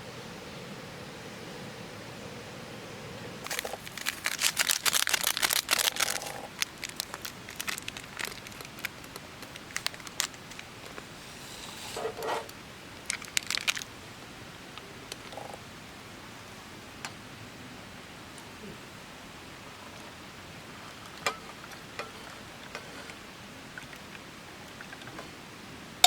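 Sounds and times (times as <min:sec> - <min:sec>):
crinkling and rustling: 0:03.4 - 0:13.9.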